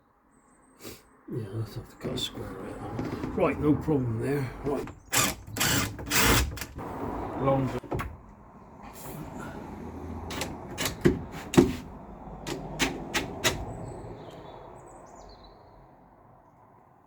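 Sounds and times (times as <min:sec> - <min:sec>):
sharp knocks and clicks on pipes: 0:10.3 - 0:11.9, 0:12.5 - 0:13.8.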